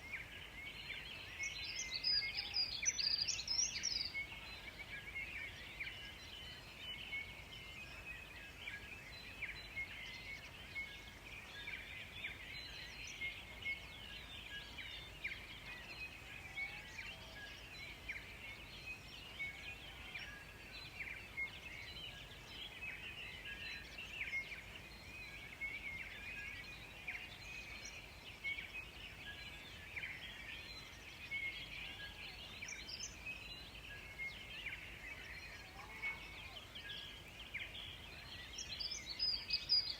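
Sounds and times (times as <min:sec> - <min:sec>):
many birds chirping: 0:00.0 - 0:39.9.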